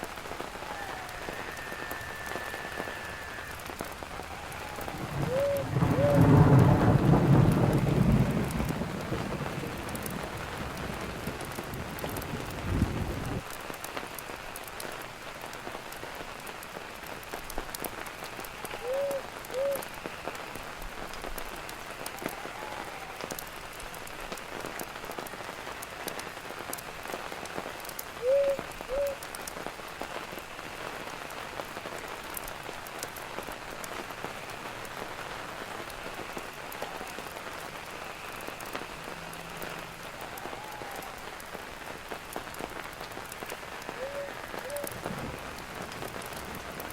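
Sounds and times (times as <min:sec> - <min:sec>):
steady rain falling: 0:00.0 - 0:46.9
low thunder rumble: 0:00.9 - 0:13.4, 0:43.2 - 0:46.9.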